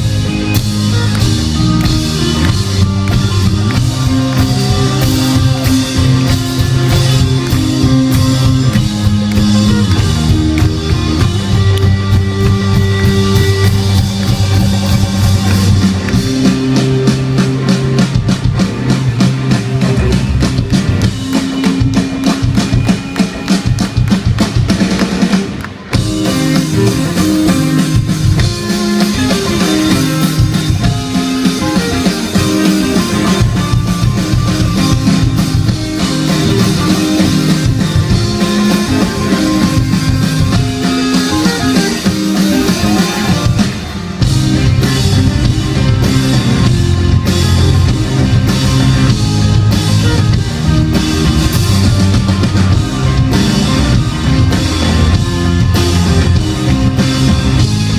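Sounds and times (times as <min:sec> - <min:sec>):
live rock band playing: 0:00.0 - 0:57.9.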